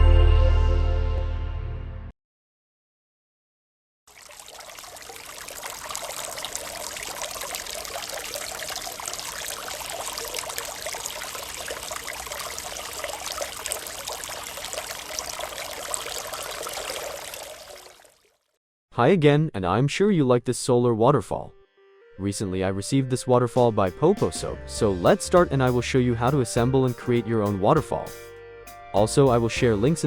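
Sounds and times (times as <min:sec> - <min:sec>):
water trickling and splashing: 0:04.1 - 0:18.5.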